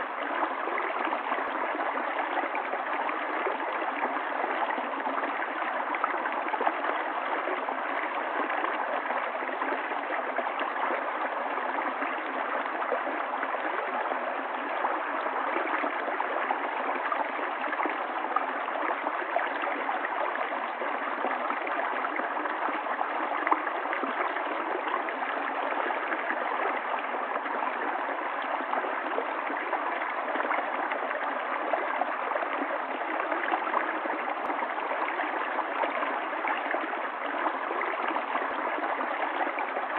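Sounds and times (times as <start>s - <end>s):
stream gurgling: 0.0s - 39.9s.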